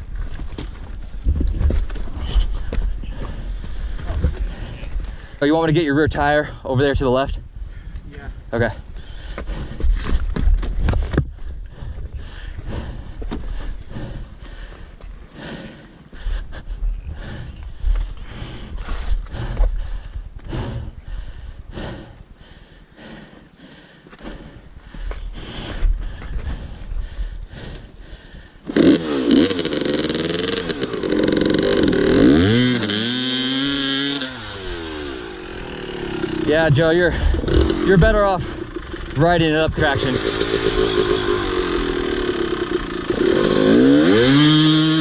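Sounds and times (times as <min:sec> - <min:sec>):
dirt bike engine revving: 0:28.6 - 0:45.0.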